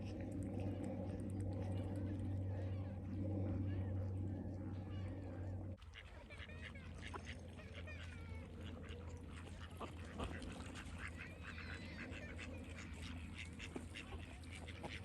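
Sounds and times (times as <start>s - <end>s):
birds calling and chirping: 0.0s - 5.8s
steady low hum: 0.0s - 15.0s.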